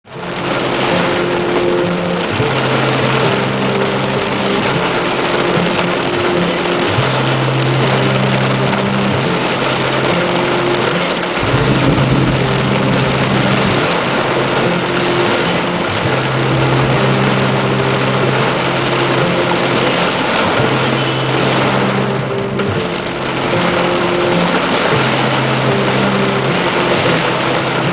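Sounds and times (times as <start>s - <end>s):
heavy rain: 0.0s - 27.9s
low held tones: 0.1s - 27.9s
low rumble: 11.4s - 18.9s.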